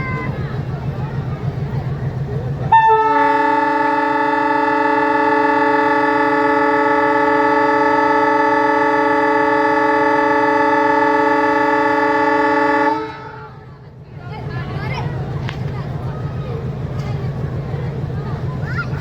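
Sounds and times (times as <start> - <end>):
locomotive air horn blast: 2.7 - 13.6.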